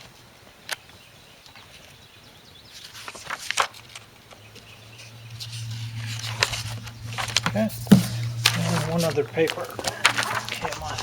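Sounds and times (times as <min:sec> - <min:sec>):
paper rustling: 0:02.7 - 0:11.0
low steady hum: 0:04.4 - 0:10.6.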